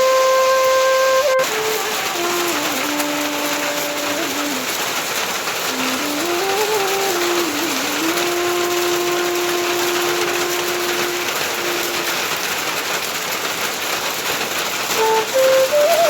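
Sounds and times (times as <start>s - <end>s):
held musical note: 0.0s - 12.4s, 14.9s - 16.0s
heavy rain: 0.0s - 16.0s.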